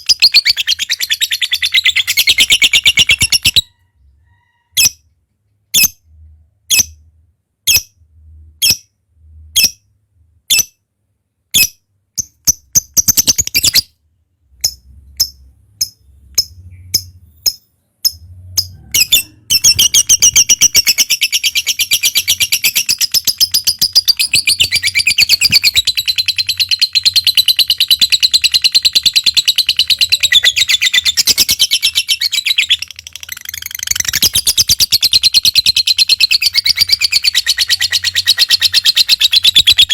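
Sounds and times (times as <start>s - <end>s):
lovebird chirping and chattering: 0.0s - 3.8s, 4.7s - 5.0s, 6.7s - 7.0s, 11.5s - 13.9s, 14.5s - 39.9s.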